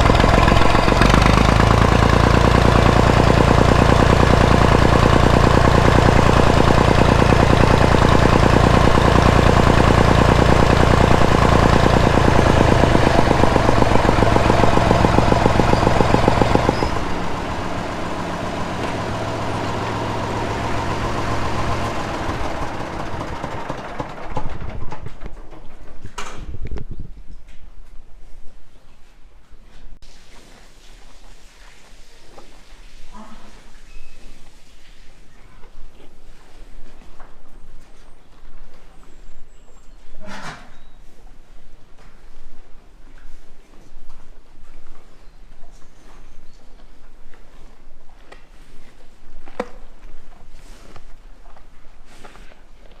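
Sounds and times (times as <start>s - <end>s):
tractor engine running: 0.0s - 25.9s.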